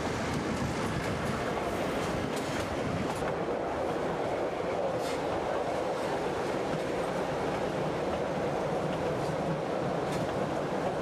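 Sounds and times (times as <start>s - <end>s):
train rolling along track: 0.0s - 11.0s.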